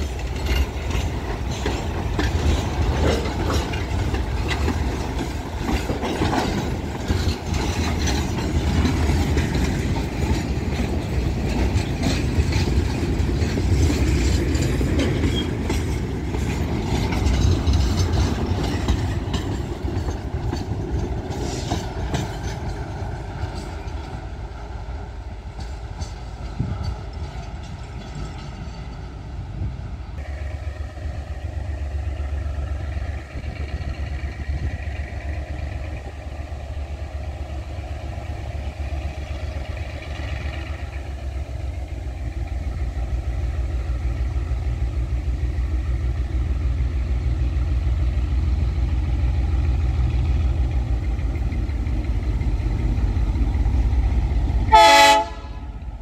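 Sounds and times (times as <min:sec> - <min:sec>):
low engine rumble: 0:00.0 - 0:56.0
wheels clicking over rail joints: 0:00.0 - 0:56.0.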